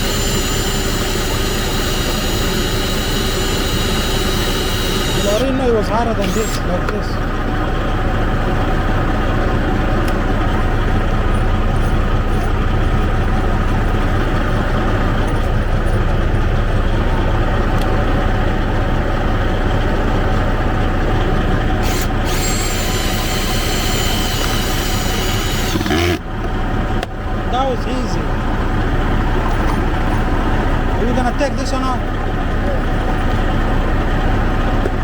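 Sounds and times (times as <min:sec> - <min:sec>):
thin high whine: 0:00.0 - 0:05.5
diesel truck engine idling: 0:00.0 - 0:35.0.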